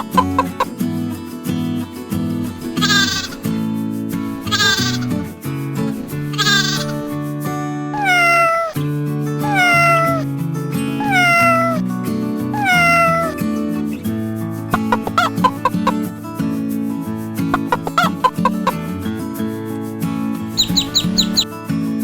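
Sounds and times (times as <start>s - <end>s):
cat meowing: 0.0s - 0.7s, 2.8s - 3.5s, 4.4s - 5.2s, 6.3s - 7.0s, 8.0s - 8.8s, 9.4s - 10.3s, 11.0s - 11.8s, 12.6s - 13.4s, 14.8s - 16.0s, 17.6s - 18.8s, 20.6s - 21.4s
background music: 0.0s - 22.0s
goat bleating: 2.8s - 3.5s, 4.4s - 5.2s, 6.3s - 7.0s, 8.0s - 8.8s, 9.4s - 10.2s, 11.0s - 11.8s, 12.6s - 13.4s, 14.8s - 15.9s.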